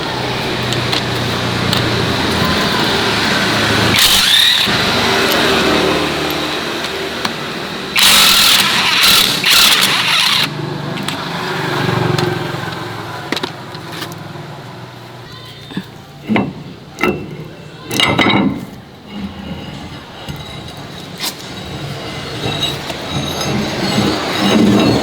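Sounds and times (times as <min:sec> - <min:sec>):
farm vehicle engine running: 0:00.0 - 0:14.7.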